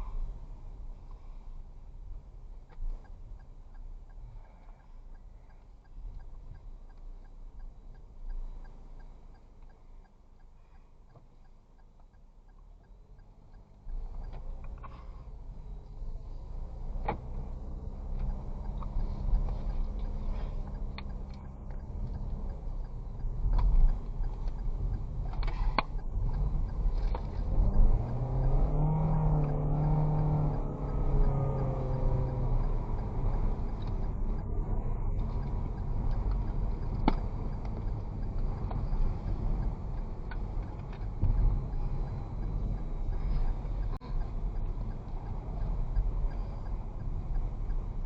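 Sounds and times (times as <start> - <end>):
vehicle engine running: 0.0 - 48.0
sharp tick: 2.6 - 48.0
sharp clicks and knocks: 16.7 - 48.0.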